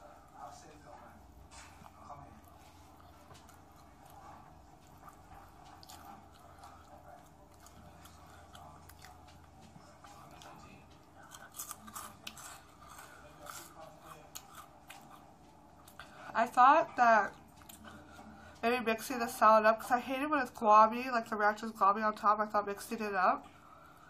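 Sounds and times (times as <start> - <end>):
close chewing with mouth smacks: 1.5 - 18.6.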